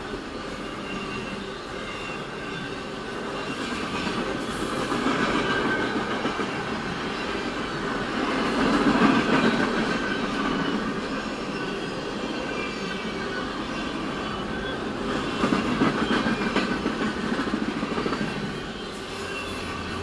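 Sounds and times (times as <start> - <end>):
train wheels clattering on rails: 0.0 - 20.0
faint high squealing: 0.4 - 4.6, 10.0 - 16.6, 18.3 - 20.0.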